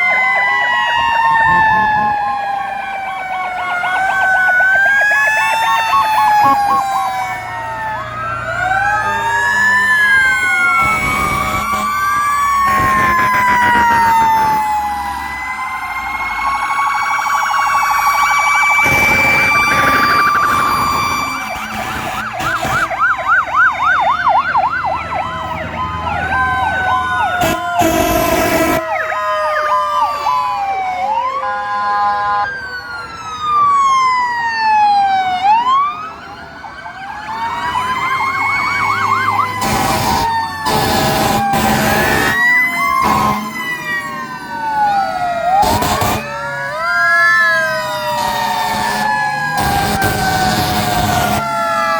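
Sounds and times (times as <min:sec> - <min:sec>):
fire engine sirens wailing: 0:00.0 - 0:51.9
loud horn blasts: 0:06.4 - 0:07.0, 0:10.7 - 0:14.2, 0:21.6 - 0:22.9, 0:27.4 - 0:29.0, 0:39.6 - 0:43.6, 0:45.6 - 0:46.2, 0:48.2 - 0:51.5.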